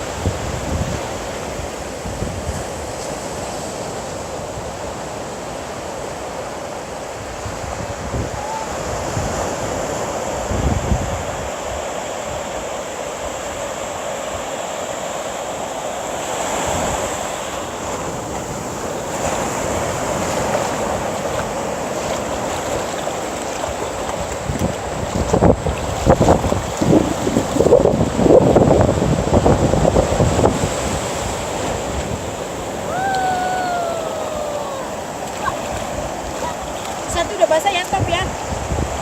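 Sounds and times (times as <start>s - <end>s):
wind gusting on microphone: 0.0s - 5.0s, 7.2s - 12.6s, 16.3s - 39.0s
sea surf washing ashore: 0.0s - 39.0s.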